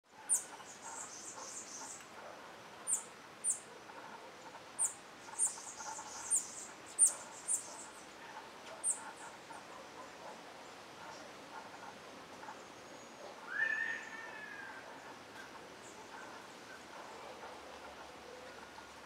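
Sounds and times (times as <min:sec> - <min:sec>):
soft background twittering: 0:00.1 - 0:13.5.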